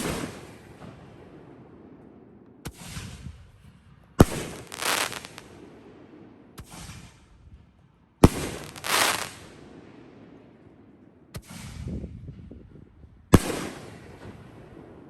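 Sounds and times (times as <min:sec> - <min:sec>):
hissing firework burst: 0:04.3 - 0:05.4, 0:08.3 - 0:09.5.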